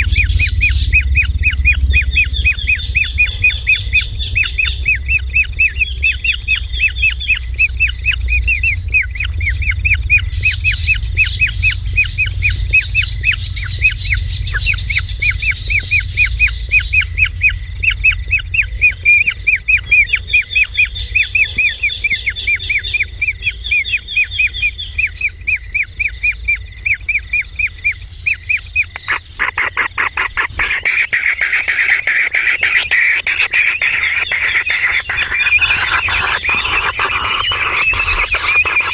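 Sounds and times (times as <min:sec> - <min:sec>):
steady high-pitched whine: 0:28.2 - 0:38.9
kingfisher chirping: 0:28.6 - 0:38.9.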